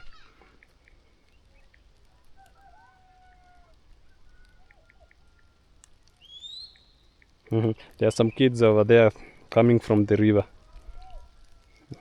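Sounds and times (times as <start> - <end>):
children shouting in distance: 0.0 - 0.5.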